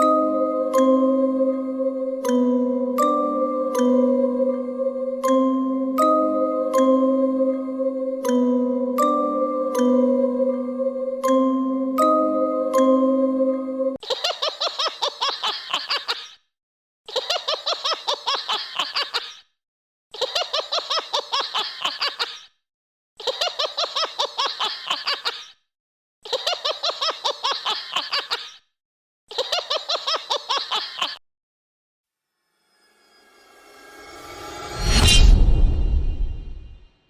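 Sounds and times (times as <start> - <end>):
high-pitched looped laughter: 0.0 - 16.4, 17.1 - 19.4, 20.2 - 22.4, 23.2 - 25.5, 26.2 - 28.6, 29.3 - 31.2.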